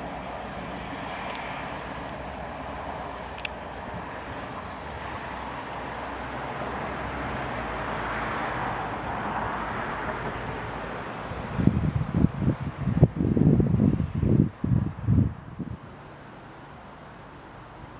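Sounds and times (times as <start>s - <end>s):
train passing: 0.0s - 12.5s
wind buffeting microphone: 8.6s - 15.9s.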